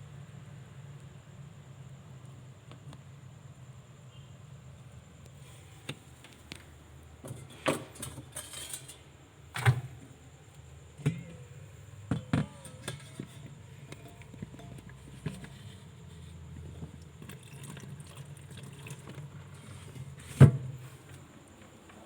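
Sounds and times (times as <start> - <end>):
objects being handled: 11.0 - 17.8.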